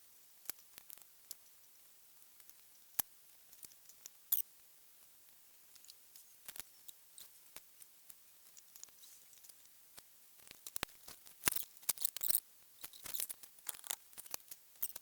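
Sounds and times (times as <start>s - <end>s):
small parts and tools clicking: 2.3s - 4.5s, 5.7s - 15.0s.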